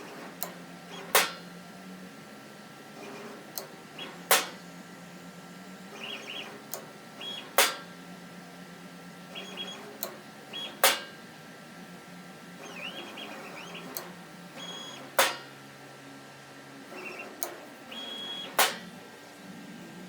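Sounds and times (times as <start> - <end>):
stepper motors whirring: 5.9 - 7.6, 12.6 - 15.2, 16.9 - 20.0
soft solenoid click: 17.1 - 18.9.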